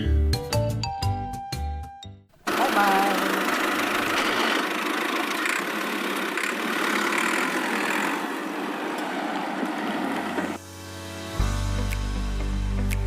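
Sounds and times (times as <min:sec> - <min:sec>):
engine idling: 0:02.4 - 0:10.6.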